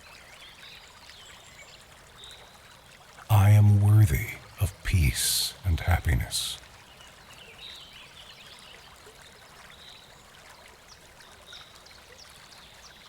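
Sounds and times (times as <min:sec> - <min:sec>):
brook trickling over stones: 0:00.0 - 0:03.3, 0:06.7 - 0:13.0.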